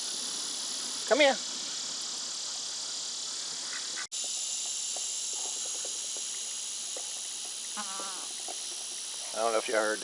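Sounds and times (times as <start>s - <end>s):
buzzing insect chorus: 0.0s - 10.0s
goat calling: 7.8s - 8.3s.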